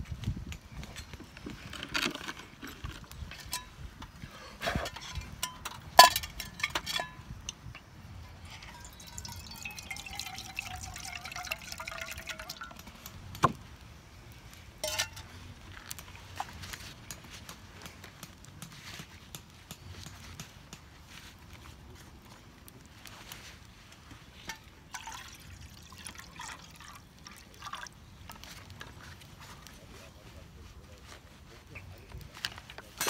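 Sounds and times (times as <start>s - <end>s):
sharp knocks and clinks: 4.9s - 13.6s, 14.8s - 15.3s
liquid pouring or dripping: 8.4s - 13.2s, 24.9s - 28.0s.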